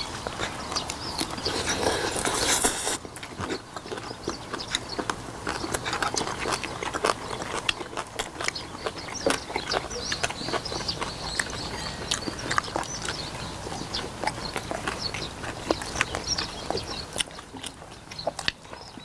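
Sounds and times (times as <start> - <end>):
wet chewing and lip-smacking: 0.0 - 19.0
sharp mouth clicks: 0.8 - 3.6.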